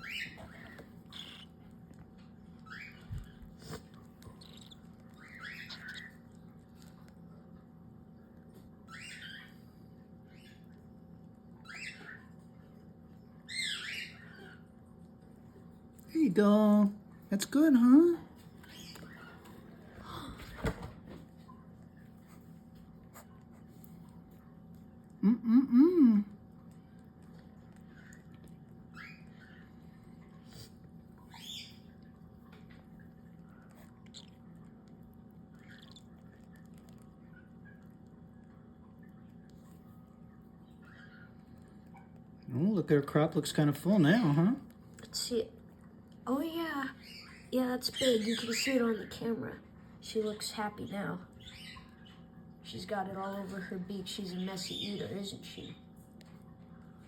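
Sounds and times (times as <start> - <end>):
baby cockatiel chirping: 0.0 - 1.6, 2.6 - 3.4, 4.3 - 6.2, 8.9 - 9.5, 13.5 - 14.6, 46.6 - 49.1.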